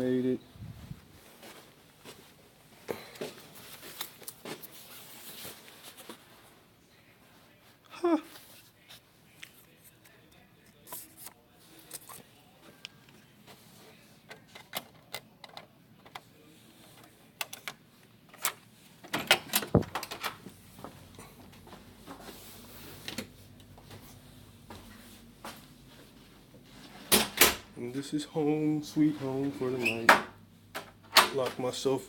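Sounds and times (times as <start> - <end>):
door unlocking and opening: 18.4 - 20.4, 27.1 - 27.7
door clicks and knocks: 19.1 - 20.4.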